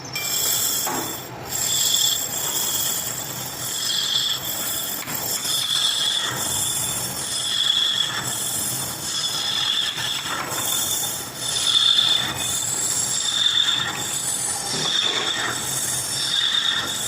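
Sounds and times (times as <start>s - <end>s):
machining tool squealing: 0.0s - 17.0s.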